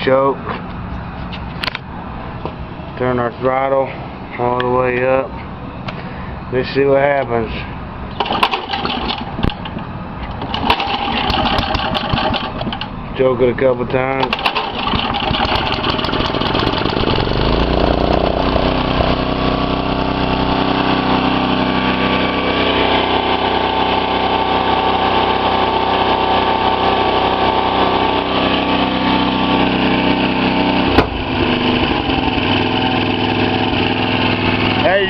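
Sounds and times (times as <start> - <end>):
small tiller engine running: 8.2 - 9.4, 10.3 - 12.9, 14.2 - 35.0.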